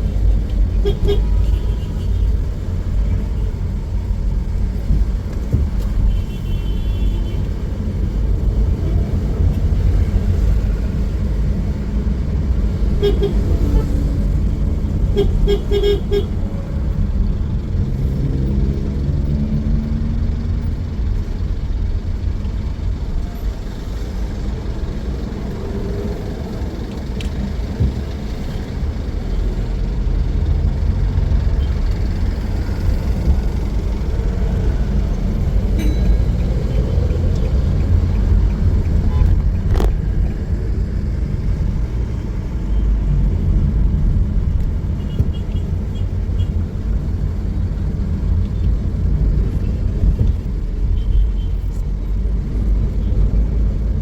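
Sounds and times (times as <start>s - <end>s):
traffic engines rumbling: 0.0s - 54.0s
car horns tooting: 0.7s - 2.4s, 13.0s - 13.9s, 15.1s - 16.4s.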